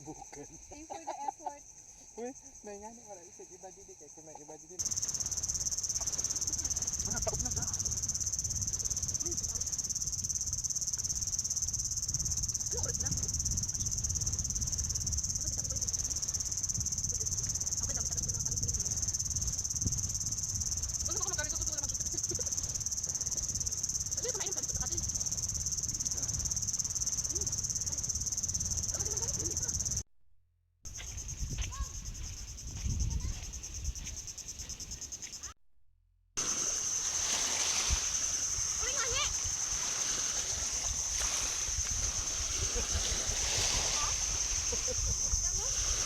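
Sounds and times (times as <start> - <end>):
high-pitched insect chirring: 4.8 - 30.0, 36.4 - 46.0.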